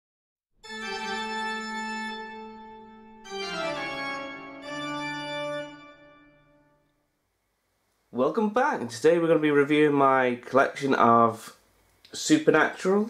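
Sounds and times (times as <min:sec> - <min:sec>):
organ chords jingle: 0:00.6 - 0:06.9.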